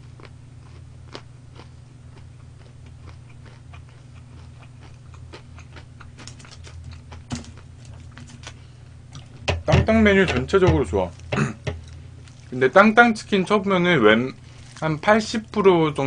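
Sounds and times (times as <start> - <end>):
soft crunches of chewing: 0.0 - 9.5, 11.1 - 12.7, 14.2 - 15.6
low hum: 0.0 - 16.0.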